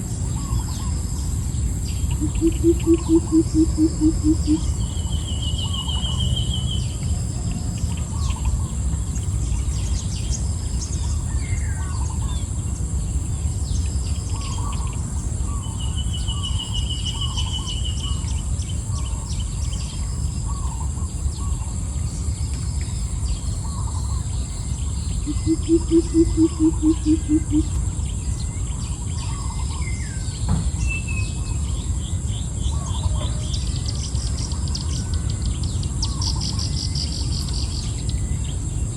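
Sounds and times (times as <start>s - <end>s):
high insect drone: 0.0s - 38.9s
small bird chirps: 2.0s - 6.9s, 22.6s - 30.4s
low rapidly pulsing call: 2.1s - 6.7s, 25.2s - 27.9s.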